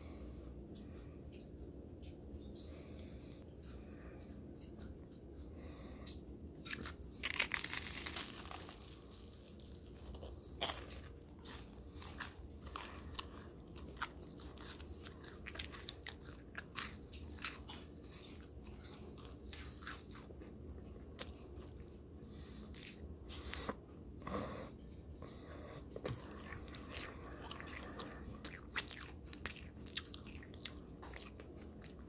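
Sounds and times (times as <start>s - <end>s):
crunchy chewing of toasted sandwich: 6.0s - 32.0s
sharp crack of crust: 6.6s - 9.8s.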